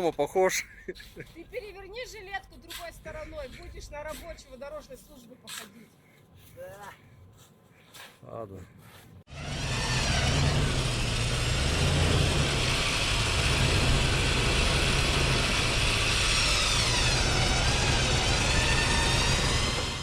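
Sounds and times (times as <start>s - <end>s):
high whine: 9.3s - 20.0s
suv engine humming: 9.3s - 20.0s
tires churning wet snow: 9.3s - 20.0s.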